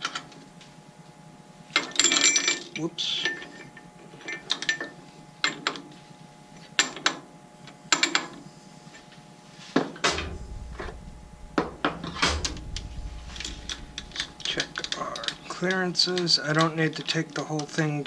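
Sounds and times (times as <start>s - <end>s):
low steady hum: 10.1s - 16.2s.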